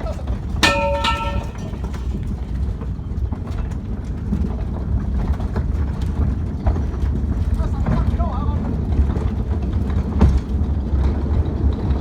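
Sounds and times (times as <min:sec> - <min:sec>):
boat cradle rumbling on rails: 0:00.0 - 0:02.6.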